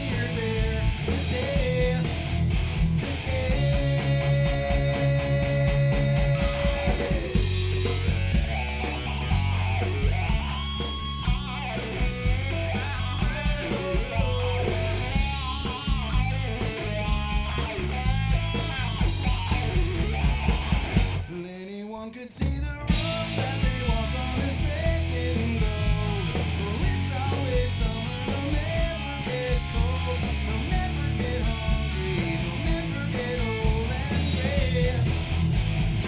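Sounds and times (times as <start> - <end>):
bass guitar: 0.0 - 21.4, 22.4 - 36.0
drum kit: 0.0 - 21.4, 22.4 - 36.0
lead electric guitar melody: 3.5 - 21.2.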